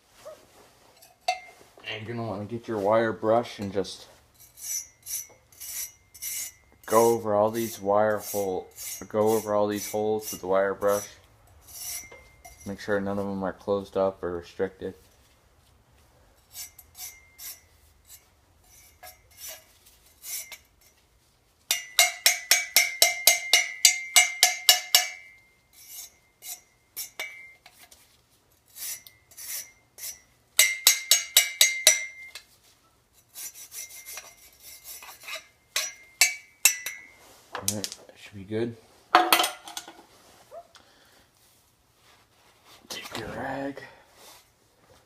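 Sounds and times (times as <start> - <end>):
wire brush scraping metal tube: 4.2 - 13.3, 16.4 - 21.1, 24.4 - 37.5.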